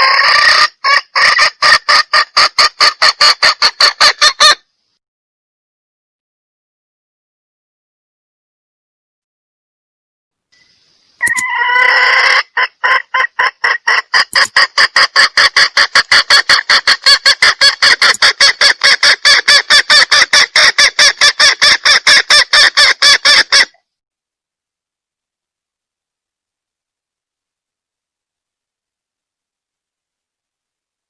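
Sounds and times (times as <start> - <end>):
hen calling: 0.0 - 4.6, 10.7 - 23.8
sharp clucks: 0.0 - 4.6, 11.2 - 23.8.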